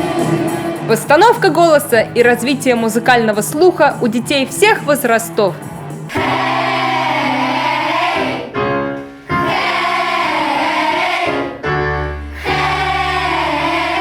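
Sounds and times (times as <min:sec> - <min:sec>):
children singing pop song: 0:00.0 - 0:03.1, 0:06.1 - 0:08.6, 0:09.2 - 0:11.6, 0:12.3 - 0:14.0
instrumental accompaniment: 0:00.0 - 0:14.0.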